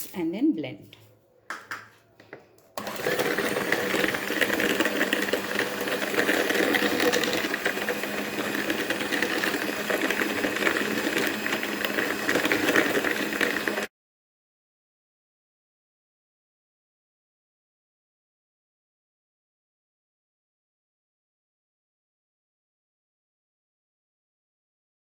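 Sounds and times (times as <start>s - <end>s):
electric hand mixer whirring: 2.8s - 13.9s.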